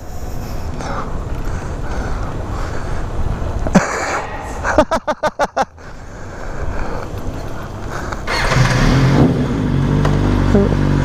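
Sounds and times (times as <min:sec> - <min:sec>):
low rumbling: 0:00.0 - 0:11.0
motorcycle engine starting and idling: 0:07.1 - 0:11.0.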